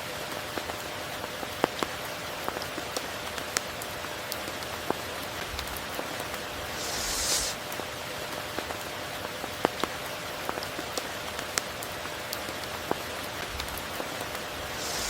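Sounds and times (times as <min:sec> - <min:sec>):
raindrops ticking on a surface: 0:00.0 - 0:06.6, 0:07.6 - 0:15.0
rain hiss: 0:02.3 - 0:09.2, 0:11.3 - 0:15.0.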